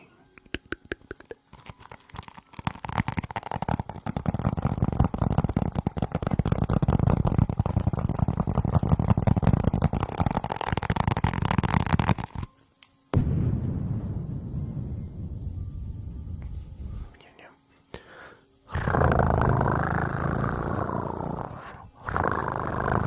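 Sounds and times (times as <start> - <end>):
rapid crackling and scratching: 1.1 - 12.5
low rumble: 13.2 - 17.2.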